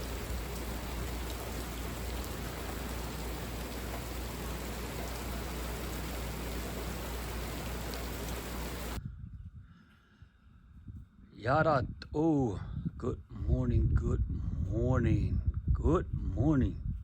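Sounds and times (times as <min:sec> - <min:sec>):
heavy rain pouring: 0:00.0 - 0:09.0.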